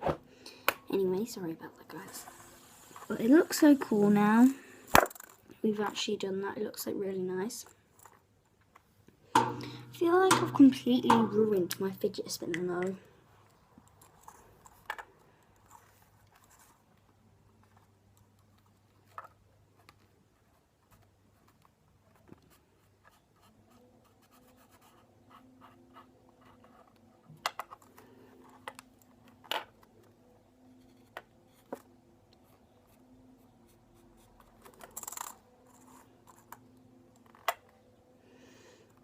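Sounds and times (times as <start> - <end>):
marker pen scratching on plastic: 19.8 - 27.2.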